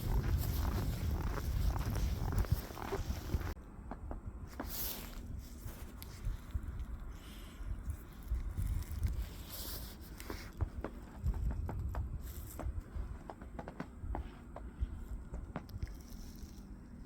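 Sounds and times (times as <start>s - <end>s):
footsteps crunching in snow: 0.0s - 3.6s
low rumble on microphone: 0.0s - 17.0s.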